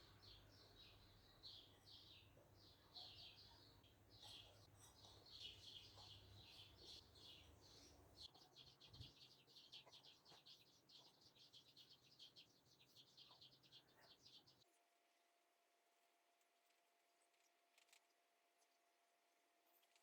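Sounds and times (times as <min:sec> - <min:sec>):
faint birdsong: 0:00.0 - 0:14.8.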